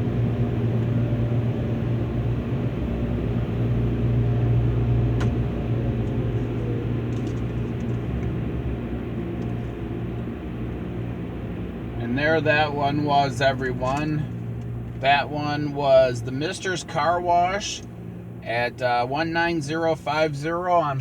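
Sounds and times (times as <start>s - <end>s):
dryer blowers droning: 0.0s - 21.0s.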